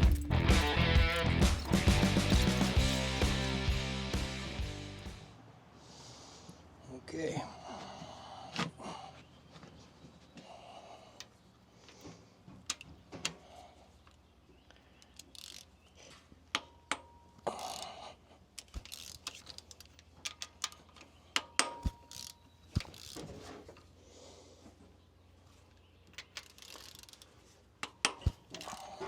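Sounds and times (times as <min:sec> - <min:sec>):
socket ratchet clicking: 0:18.6 - 0:23.2, 0:26.1 - 0:28.8.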